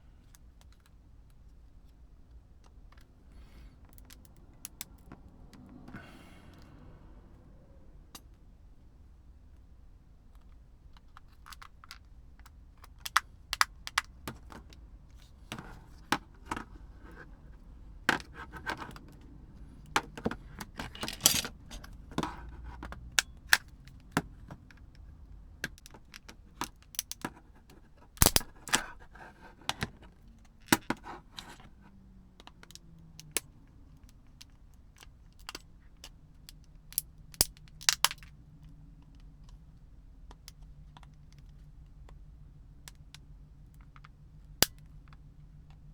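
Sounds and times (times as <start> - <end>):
small plastic and metal parts clicking: 10.4 - 14.8, 19.8 - 25.0, 28.2 - 28.9, 34.0 - 38.3.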